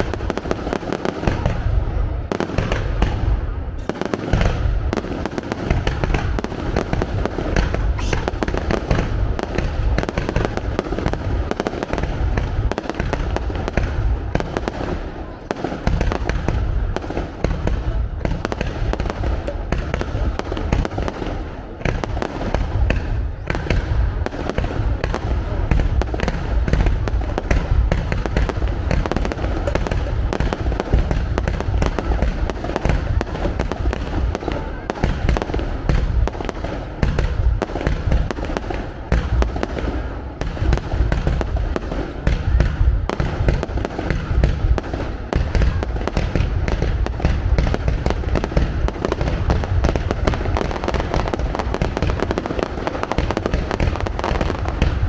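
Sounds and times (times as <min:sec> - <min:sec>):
fireworks bangs and bursts: 0:00.0 - 0:55.0.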